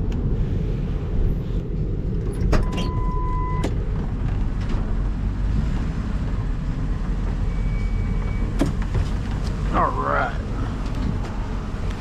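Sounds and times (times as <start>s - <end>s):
vehicle low rumble: 0.0s - 12.0s.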